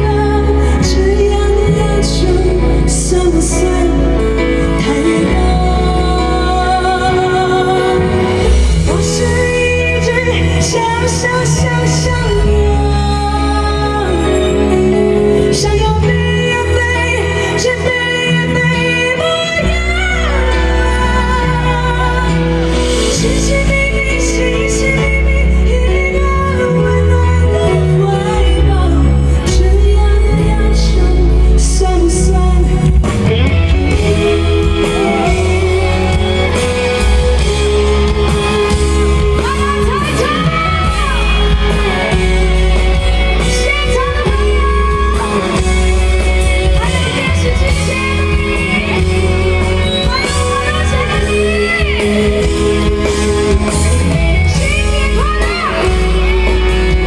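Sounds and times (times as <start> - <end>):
live pop band music: 0.0 - 57.0
person singing: 0.0 - 57.0
heavy bass line: 29.1 - 57.0.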